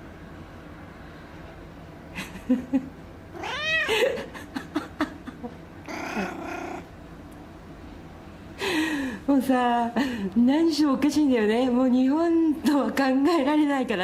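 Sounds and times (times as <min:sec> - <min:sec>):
cat meowing: 0:03.3 - 0:03.9, 0:05.9 - 0:06.9.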